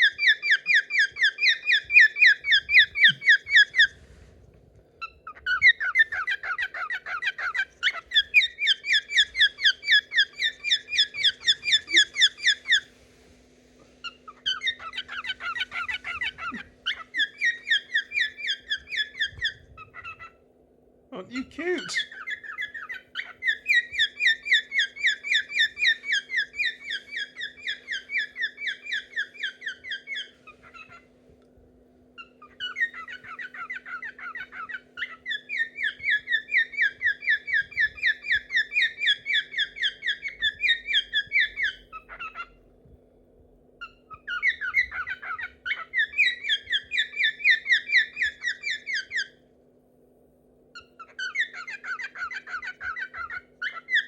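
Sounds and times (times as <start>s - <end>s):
cockatiel warbling: 5.0s - 12.9s, 14.0s - 20.4s, 21.4s - 31.1s, 32.2s - 42.6s, 43.8s - 49.3s, 50.8s - 54.0s.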